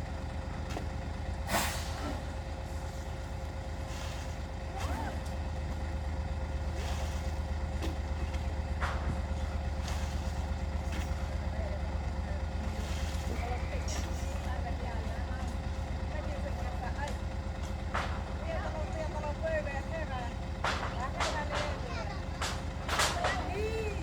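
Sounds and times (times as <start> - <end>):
engine chugging: 0.0 - 24.0
knocks: 20.6 - 23.6.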